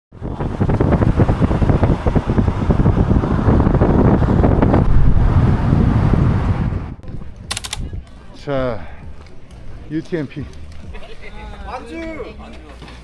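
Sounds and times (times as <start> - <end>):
wind buffeting microphone: 0.1 - 8.4.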